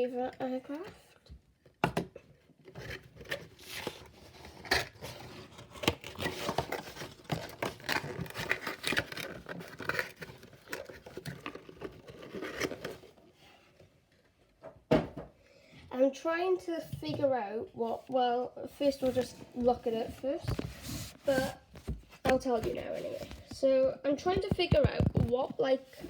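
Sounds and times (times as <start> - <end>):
packaging tearing: 3.2 - 13.1
plastic packaging crinkling: 3.2 - 13.3.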